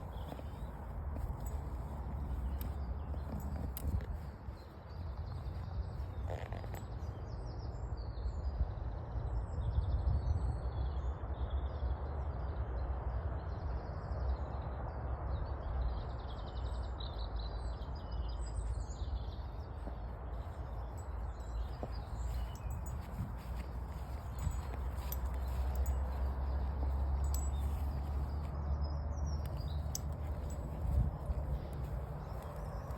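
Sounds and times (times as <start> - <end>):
steady low rumble: 0.0 - 6.2, 19.4 - 32.9
small birds chirping and singing: 0.0 - 8.2, 17.5 - 28.6.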